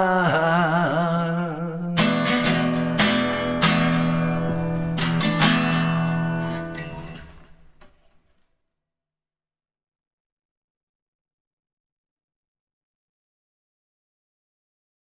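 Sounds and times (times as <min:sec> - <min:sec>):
acoustic guitar strumming: 0:00.0 - 0:07.9.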